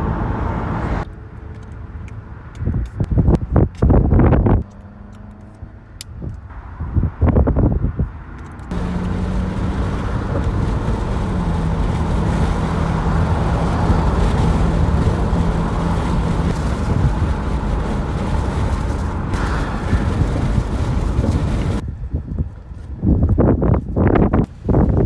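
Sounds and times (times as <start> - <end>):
low engine hum: 0.0 - 23.0
vehicle road noise: 0.0 - 23.0, 24.4 - 25.0.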